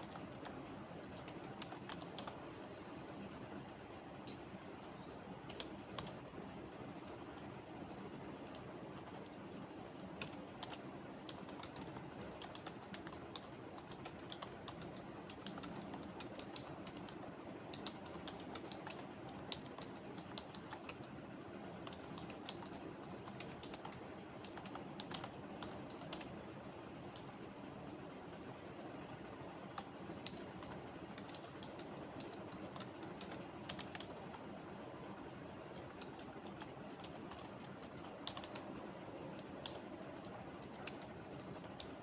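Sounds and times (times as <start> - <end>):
keyboard typing: 0.0 - 2.8, 5.4 - 6.2, 8.4 - 21.2, 21.8 - 26.4, 27.0 - 27.4, 29.2 - 34.5, 35.5 - 42.0
steady background noise: 0.0 - 42.0.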